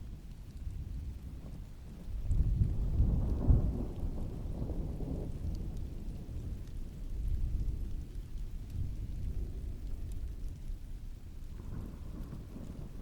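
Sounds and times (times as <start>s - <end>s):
heavy rain: 0.0s - 13.0s
thunder rolling: 11.6s - 13.0s.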